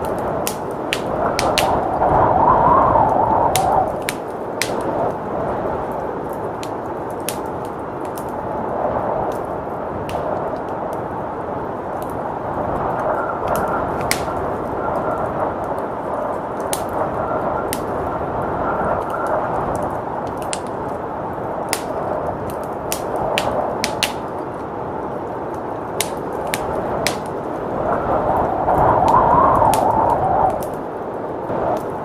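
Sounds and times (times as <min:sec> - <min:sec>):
blizzard wind rushing: 0:00.0 - 0:32.0
wood fire crackling: 0:00.0 - 0:32.0.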